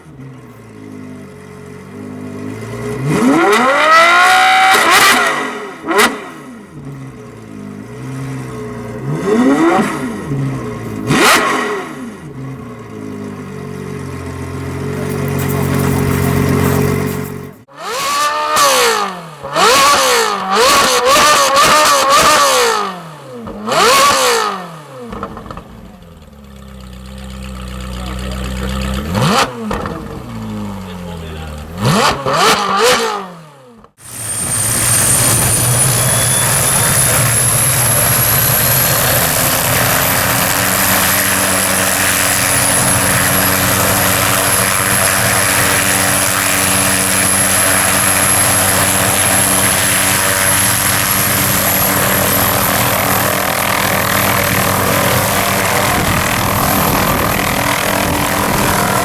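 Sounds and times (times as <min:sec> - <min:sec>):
car engines revving: 0:00.0 - 0:59.0
helicopter turbine and rotor: 0:34.0 - 0:59.0
high thin turbine whine: 0:34.0 - 0:59.0.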